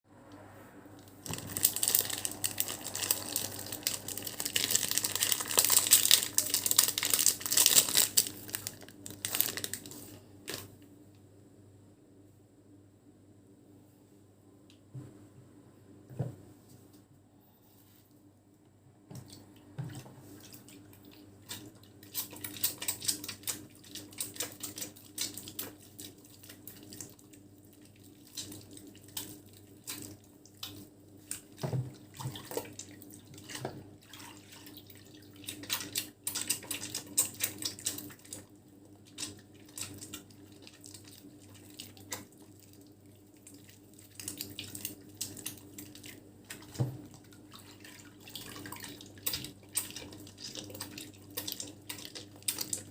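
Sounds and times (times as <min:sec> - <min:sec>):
faint steady hum: 0:00.0 - 0:52.9
crackle of foam: 0:01.0 - 0:10.8
soap lathering in wet hands: 0:19.2 - 0:52.9.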